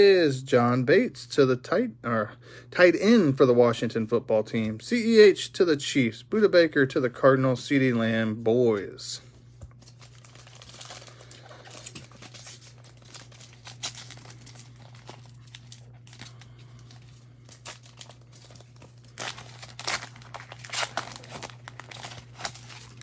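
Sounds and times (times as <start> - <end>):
plastic wrapper crinkling and tearing: 9.7 - 23.0.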